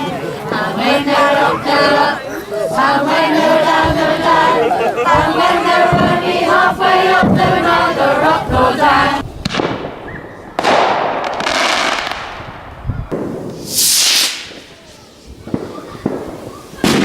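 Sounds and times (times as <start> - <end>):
crowd chanting: 0.0 - 9.2
fireworks bursting: 0.0 - 17.0.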